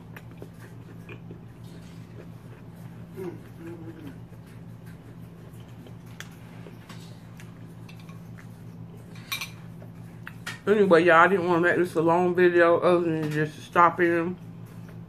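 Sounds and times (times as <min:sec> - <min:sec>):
chewing a cracker: 0:00.0 - 0:10.5
steady low hum: 0:00.0 - 0:15.0
person humming: 0:03.1 - 0:04.3.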